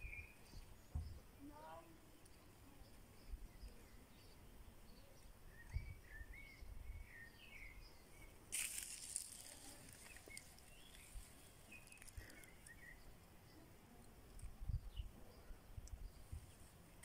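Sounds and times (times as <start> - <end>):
small birds chirping: 0.0 - 17.0
rustling: 8.5 - 12.8.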